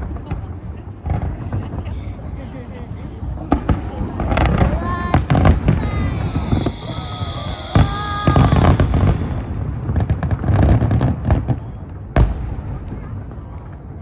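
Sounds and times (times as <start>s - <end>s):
fireworks booms and crackle: 0.0s - 14.0s
sharp firework bangs: 3.2s - 13.8s.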